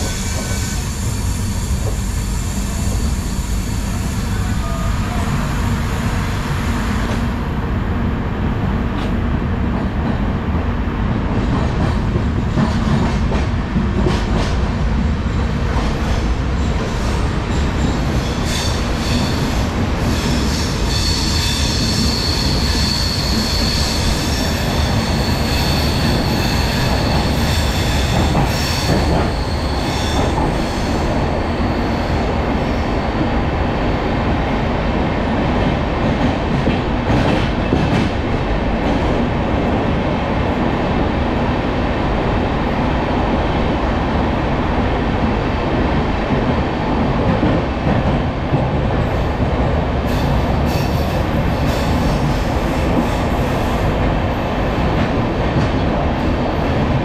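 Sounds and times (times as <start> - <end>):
train wheels rumbling on rails: 0.0 - 57.0
train wheels clacking: 17.6 - 31.2, 35.6 - 39.2.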